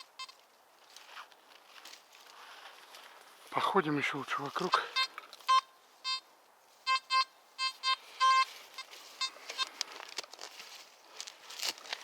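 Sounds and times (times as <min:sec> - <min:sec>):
metal detector beeping: 0:00.0 - 0:00.4, 0:04.7 - 0:09.8
footsteps rustling through leaf litter: 0:00.8 - 0:04.7, 0:08.0 - 0:12.0.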